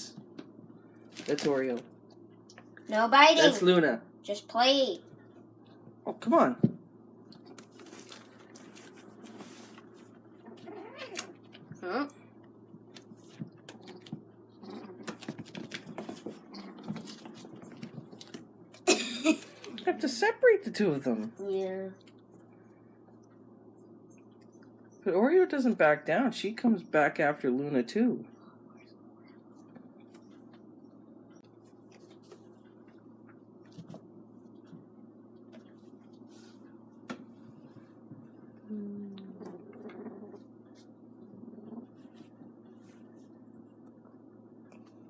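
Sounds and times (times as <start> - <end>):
low room hum: 0.0 - 45.0
kittens paws and claws pattering: 7.3 - 11.8, 12.4 - 18.5, 29.4 - 38.4.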